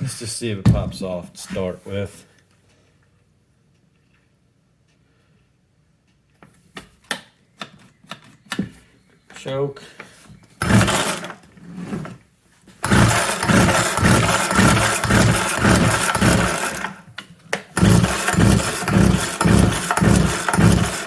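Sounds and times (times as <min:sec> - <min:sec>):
chainsaw engine running unevenly: 0:10.6 - 0:11.4, 0:12.8 - 0:17.1, 0:17.8 - 0:21.0
chainsaw pull start: 0:10.6 - 0:12.2, 0:12.8 - 0:21.0.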